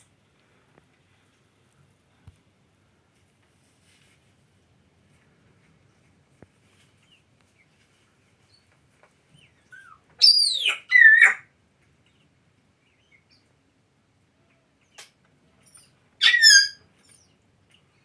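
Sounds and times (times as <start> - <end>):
parrot chirp: 9.4 - 11.5, 14.9 - 17.3.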